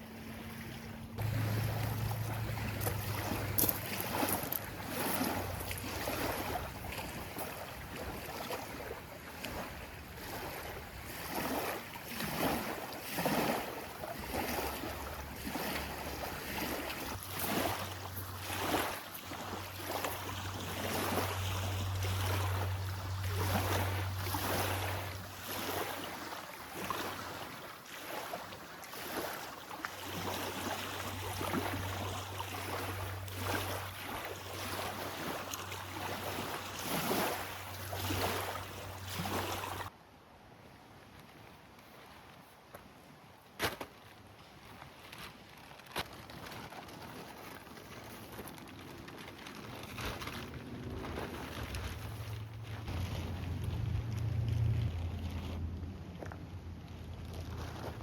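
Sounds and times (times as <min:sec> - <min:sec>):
low steady hum: 0:00.0 - 0:07.2, 0:48.3 - 0:58.0
lake water lapping and splashing: 0:00.0 - 0:40.0, 0:40.8 - 0:58.0.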